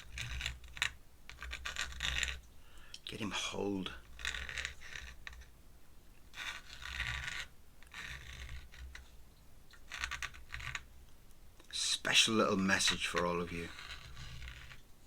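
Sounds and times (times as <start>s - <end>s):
pen scratching across paper: 0.0s - 2.4s, 3.4s - 5.5s, 6.3s - 9.2s, 9.8s - 10.9s, 12.5s - 14.8s.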